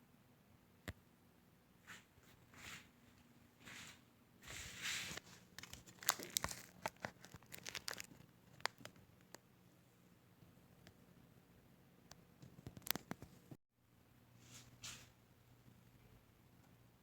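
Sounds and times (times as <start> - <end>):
soft rustling and crinkling: 1.8 - 9.4
sharp clicks and crackles: 12.1 - 13.4.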